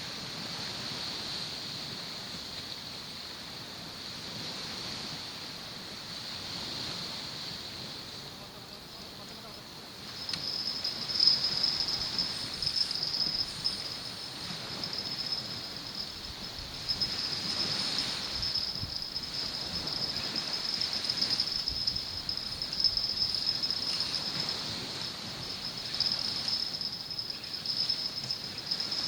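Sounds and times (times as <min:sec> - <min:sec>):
insects trilling: 0:07.0 - 0:29.0.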